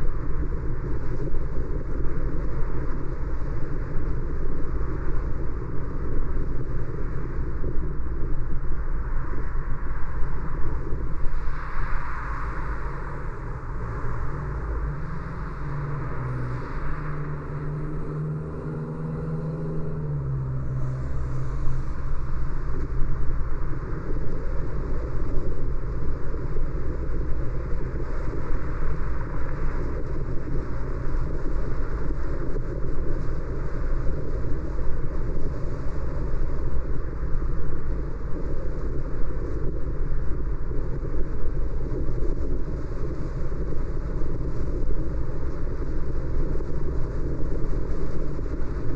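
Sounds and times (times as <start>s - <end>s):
road and tyre noise: 0.0s - 48.9s
car engine drone: 10.5s - 37.4s.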